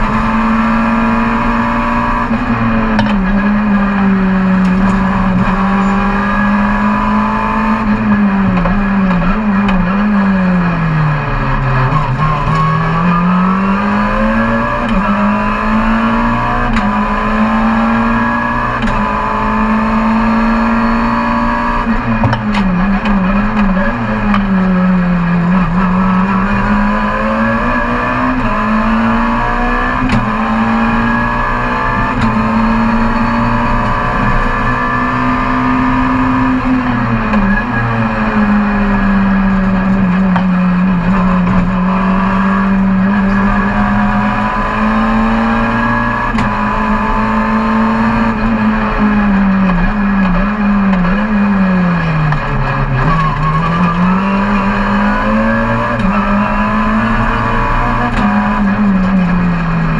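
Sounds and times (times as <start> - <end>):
car engine running under load: 0.0 - 59.9.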